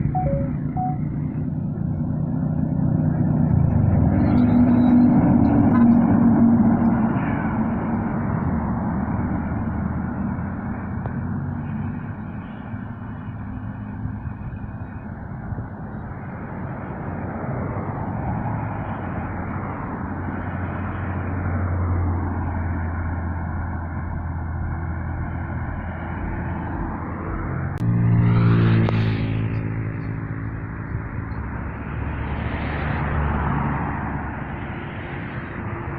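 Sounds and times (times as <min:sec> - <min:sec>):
low engine hum: 0:00.0 - 0:35.9
tyre and road rumble: 0:16.7 - 0:35.9.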